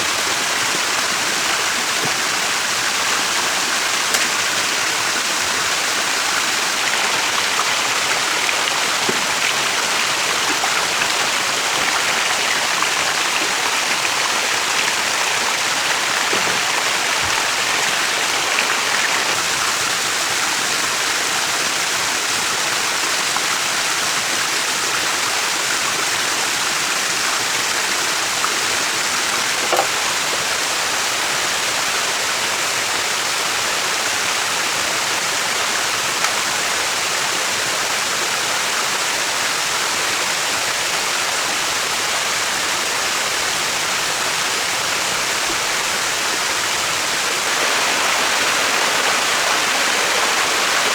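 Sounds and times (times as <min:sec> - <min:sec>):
running water rushing: 0:00.0 - 0:50.9.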